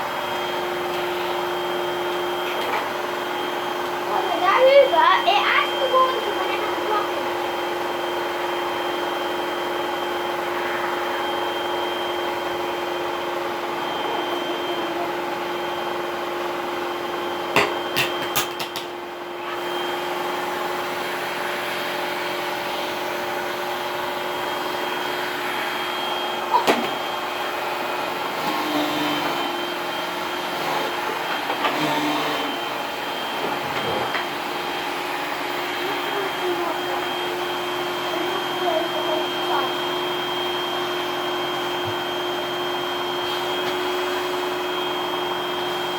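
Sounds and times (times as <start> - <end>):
vacuum cleaner running: 0.0 - 45.9
sharp knocks and clicks: 17.6 - 18.9.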